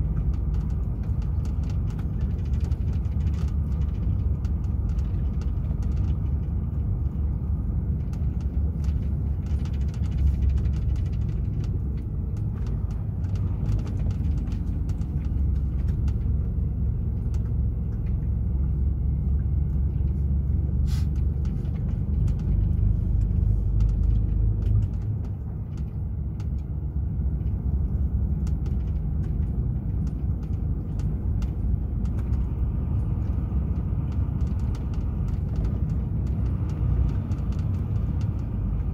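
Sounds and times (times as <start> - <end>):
road noise: 0.0 - 38.9
truck diesel engine rumbling: 0.0 - 38.9.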